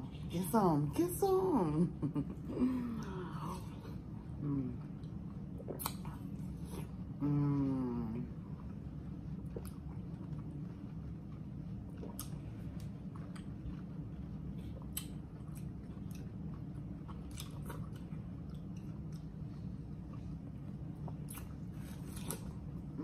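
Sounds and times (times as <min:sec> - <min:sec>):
steady low hum: 0:00.0 - 0:23.0
mouth chewing wetly: 0:04.8 - 0:07.2, 0:08.3 - 0:23.0.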